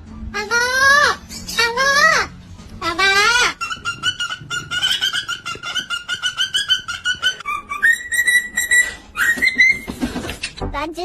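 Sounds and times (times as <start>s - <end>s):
parrot clucking calls: 2.8s - 10.4s
parrot whistling: 3.2s - 10.0s.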